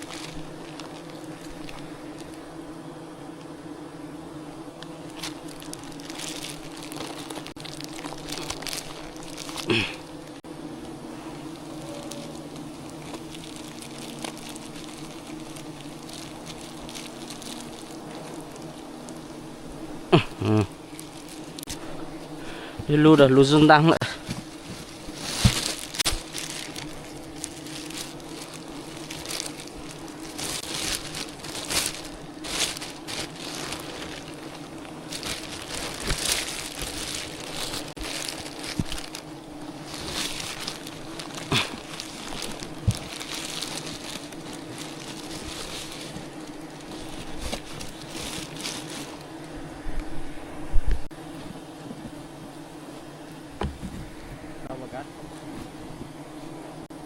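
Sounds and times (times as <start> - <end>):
crunching and rustling: 0.0 - 56.7
honeybees buzzing: 0.0 - 57.0.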